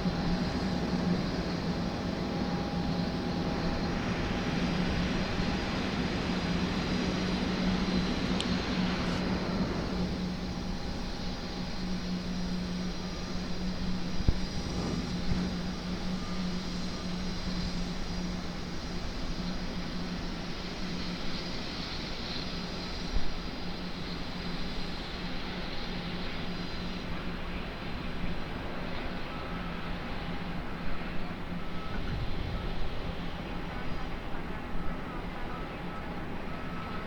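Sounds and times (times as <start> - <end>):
jet engine drone: 0.0 - 37.0
rushing swell: 14.3 - 16.0.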